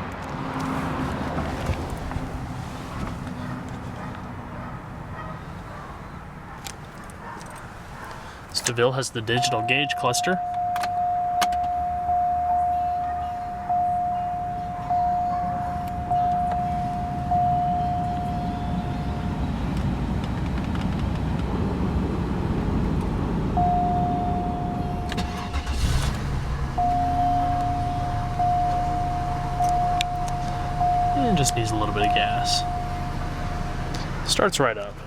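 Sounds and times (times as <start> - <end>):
car engine cranking and idling: 0.0 - 35.0
repeating warning chime: 9.3 - 19.6, 23.6 - 26.2, 26.8 - 34.1.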